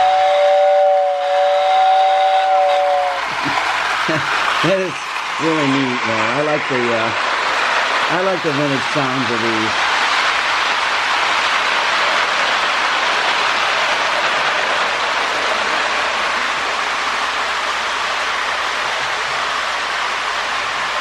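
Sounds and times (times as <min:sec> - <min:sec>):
toy train running on metal rails: 0:02.5 - 0:15.8.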